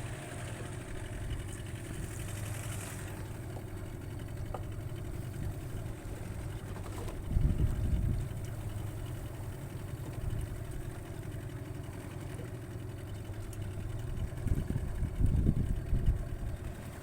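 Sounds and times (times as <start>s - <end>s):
boat engine running: 0.0s - 17.0s
rough low rumbles: 1.0s - 9.3s.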